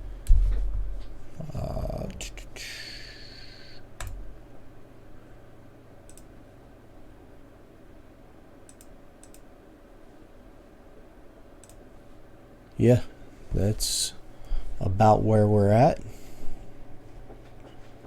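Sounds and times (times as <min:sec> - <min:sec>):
low electrical hum: 0:00.0 - 0:18.0
computer mouse clicks: 0:04.0 - 0:04.2, 0:06.1 - 0:06.3, 0:08.7 - 0:09.5, 0:11.6 - 0:11.8.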